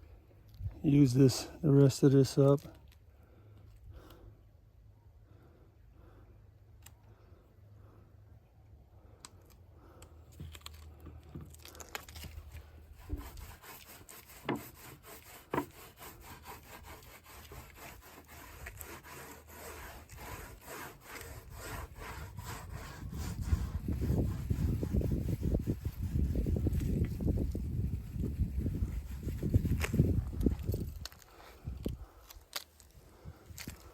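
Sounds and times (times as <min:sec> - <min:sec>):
rubbing on wooden drum shell: 0:12.9 - 0:30.4.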